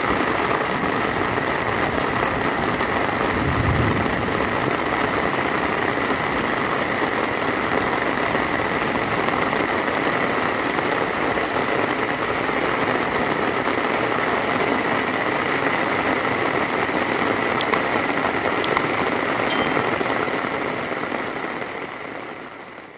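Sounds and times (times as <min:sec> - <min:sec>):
heavy rain: 0:00.0 - 0:17.2
sharp ticks: 0:19.5 - 0:20.1.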